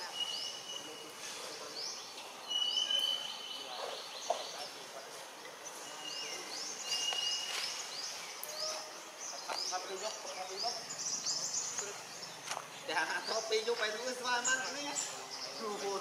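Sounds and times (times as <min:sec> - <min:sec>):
birds chirping: 0:00.0 - 0:16.0
bird whistles: 0:02.4 - 0:03.6.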